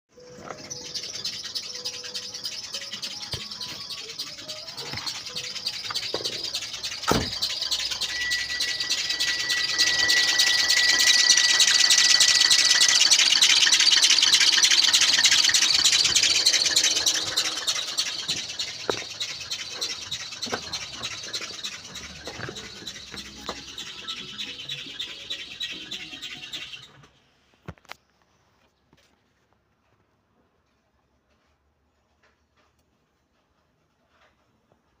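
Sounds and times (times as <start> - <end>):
engine belt chirping: 0.2 - 27.3
thin steady whistle: 5.6 - 26.3.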